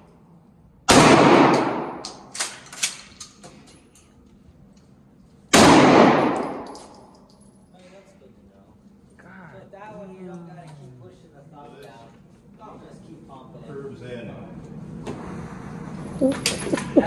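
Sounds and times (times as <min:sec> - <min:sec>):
gunshots echoing: 0:00.9 - 0:02.3, 0:05.5 - 0:06.8
light metallic clinks: 0:06.6 - 0:07.9.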